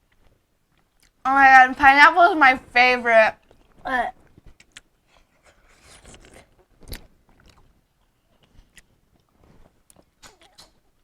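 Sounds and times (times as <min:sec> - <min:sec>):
person chewing fruit: 0:00.0 - 0:01.2, 0:03.4 - 0:10.8.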